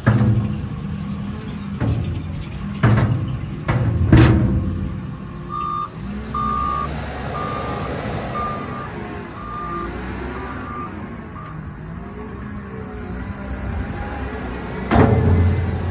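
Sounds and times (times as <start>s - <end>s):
diesel engine rumble: 0.0s - 15.9s
backup alarm beeping: 5.5s - 11.6s.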